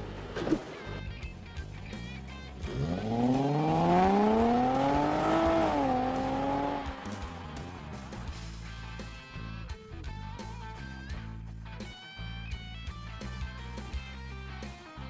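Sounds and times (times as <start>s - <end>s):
car engine accelerating: 1.6s - 9.3s.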